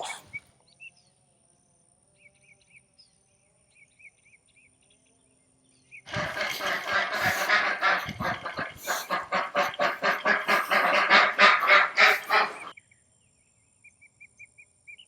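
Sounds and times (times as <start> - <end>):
geese honking: 6.1 - 12.7.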